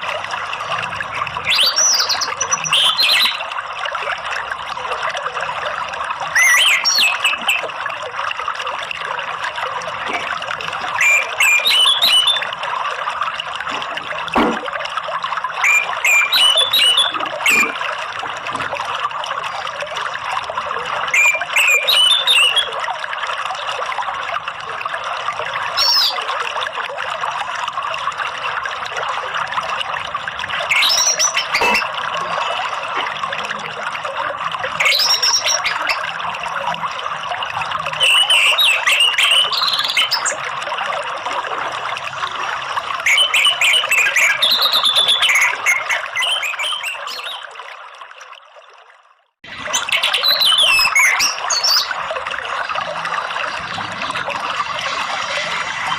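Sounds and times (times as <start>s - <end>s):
water trickling: 0.0s - 55.9s
bird song phrases: 1.4s - 3.5s, 6.4s - 7.7s, 11.0s - 12.5s, 15.6s - 17.7s, 21.2s - 22.7s, 25.8s - 26.2s, 30.7s - 31.8s, 34.8s - 36.0s, 38.0s - 40.4s, 43.1s - 47.4s, 49.7s - 51.9s.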